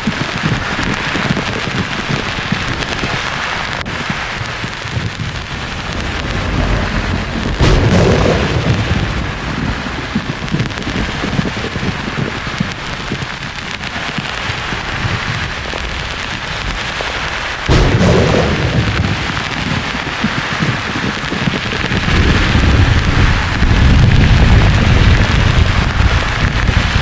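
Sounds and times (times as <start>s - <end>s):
deep thunder rumbling: 0.0s - 27.0s
steady rain hiss: 0.0s - 27.0s
thunder crack: 0.0s - 27.0s.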